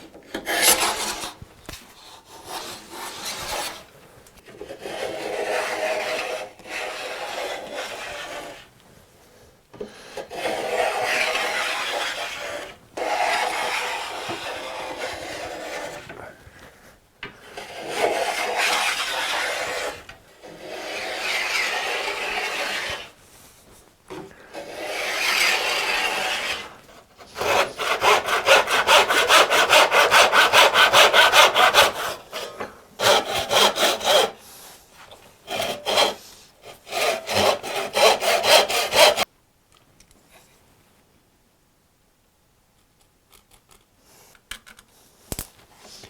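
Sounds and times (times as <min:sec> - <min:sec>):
hand saw cutting wood: 0:00.0 - 0:03.9, 0:04.5 - 0:08.7, 0:10.1 - 0:16.3, 0:17.4 - 0:23.2, 0:24.4 - 0:39.3.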